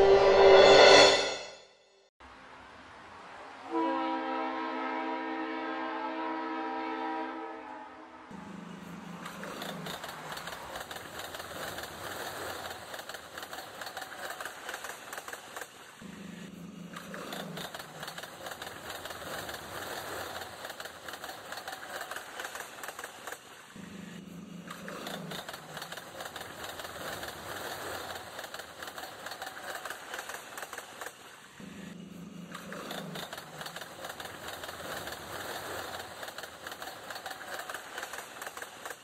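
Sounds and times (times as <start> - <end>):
train wheels clattering: 8.4 - 16.1, 16.8 - 23.8, 24.4 - 31.4, 32.4 - 39.0.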